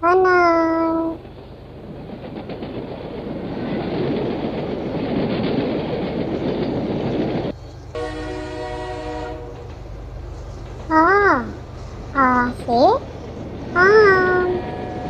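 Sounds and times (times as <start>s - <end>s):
train rumbling clickety-clack: 0.0s - 15.0s
train horn: 7.9s - 9.8s, 13.9s - 15.0s.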